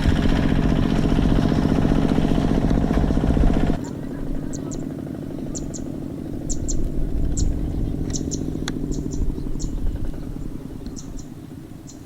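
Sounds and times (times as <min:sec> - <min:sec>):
tractor engine running: 0:00.0 - 0:12.0
bird chirping: 0:03.8 - 0:12.0.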